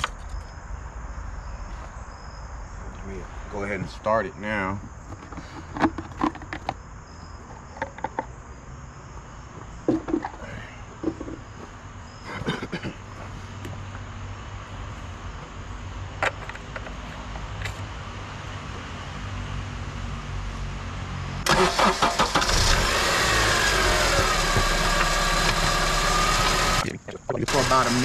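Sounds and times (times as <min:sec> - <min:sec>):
insects chirping: 0:00.0 - 0:28.0
sharp clicks and knocks: 0:07.8 - 0:08.3, 0:16.2 - 0:17.8.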